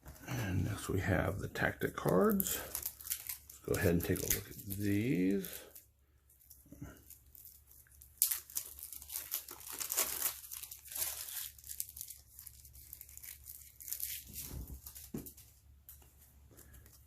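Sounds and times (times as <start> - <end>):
wrapper crinkling: 1.6 - 15.6
card pack wrapper ripping: 2.0 - 5.8, 7.0 - 15.1.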